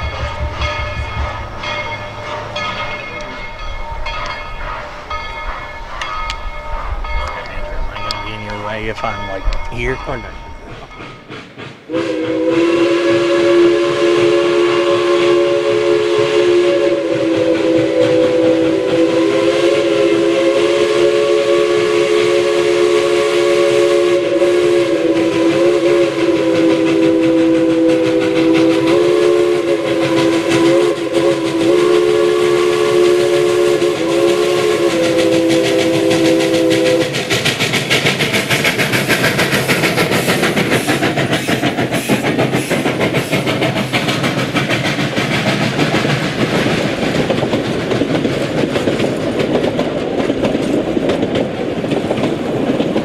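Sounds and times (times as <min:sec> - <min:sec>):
steam locomotive chime whistle: 0:00.0 - 0:37.8
train running pulsing: 0:00.0 - 0:53.0.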